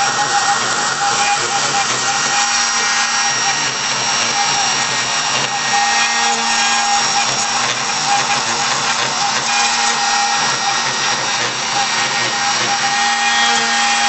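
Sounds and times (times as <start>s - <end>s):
cnc machine whirring: 0.0s - 14.0s.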